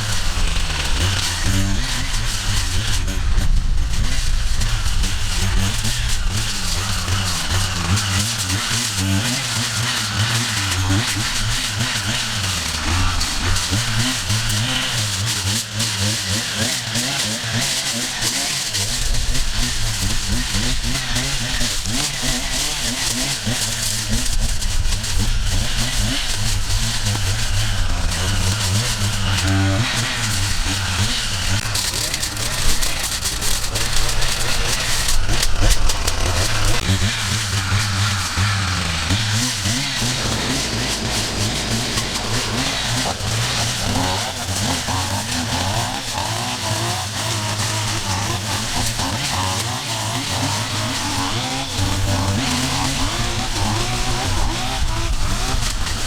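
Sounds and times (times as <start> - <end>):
small petrol engine running: 0.0 - 56.0.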